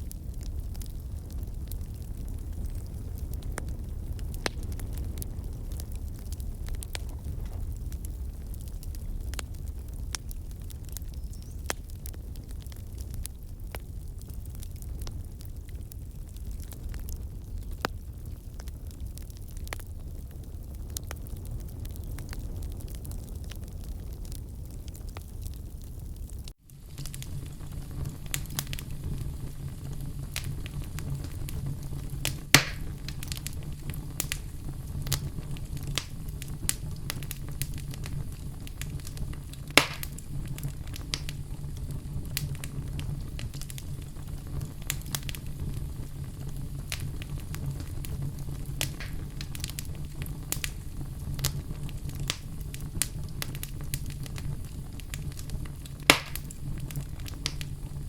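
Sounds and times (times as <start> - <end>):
low even rumble: 0.0 - 58.0
wood fire crackling: 0.0 - 58.0
sharp loud fire pops: 30.0 - 37.9, 38.9 - 40.2, 48.8 - 49.8, 56.0 - 56.5.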